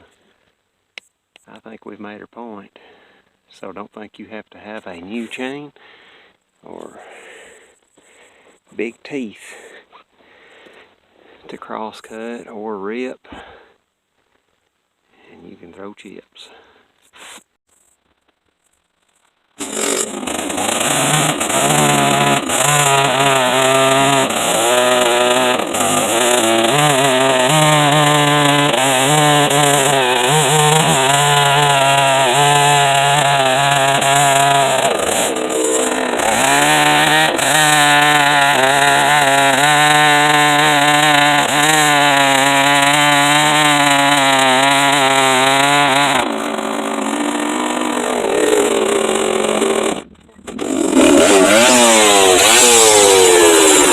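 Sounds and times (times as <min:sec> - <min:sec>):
chainsaw cutting wood: 0:19.6 - 0:53.9.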